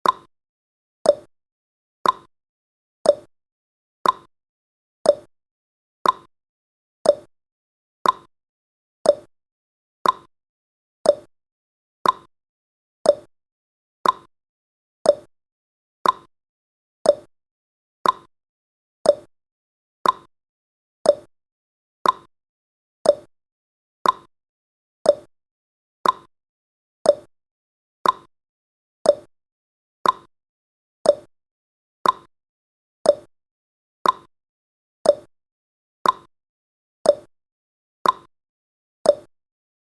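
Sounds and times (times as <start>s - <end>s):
timer ticking: 0.0s - 0.3s, 1.0s - 1.3s, 2.0s - 2.3s, 3.0s - 3.3s, 4.0s - 4.3s, 5.1s - 5.3s, 6.0s - 6.3s, 7.0s - 7.3s, 8.0s - 8.3s, 9.0s - 9.3s, 10.0s - 10.3s, 11.0s - 11.3s, 12.0s - 12.3s, 13.0s - 13.3s, 14.0s - 14.3s, 15.0s - 15.3s, 16.0s - 16.3s, 17.0s - 17.3s, 18.0s - 18.3s, 19.0s - 19.3s, 20.0s - 20.3s, 21.0s - 21.3s, 22.0s - 22.3s, 23.0s - 23.3s, 24.0s - 24.3s, 25.0s - 25.3s, 26.0s - 26.3s, 27.0s - 27.3s, 28.0s - 28.3s, 29.0s - 29.3s, 30.0s - 30.3s, 31.0s - 31.3s, 32.0s - 32.3s, 33.0s - 33.3s, 34.0s - 34.3s, 35.0s - 35.3s, 36.0s - 36.3s, 37.0s - 37.3s, 38.0s - 38.3s, 39.1s - 39.3s.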